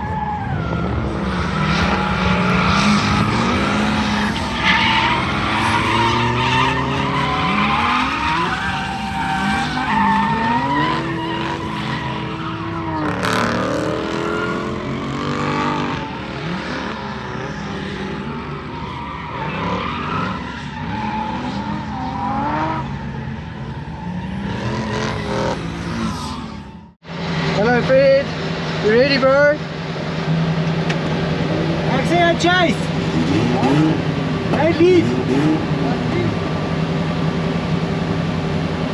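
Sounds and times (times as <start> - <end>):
car engines revving: 0.0 - 38.9
tyres squealing: 0.2 - 16.8.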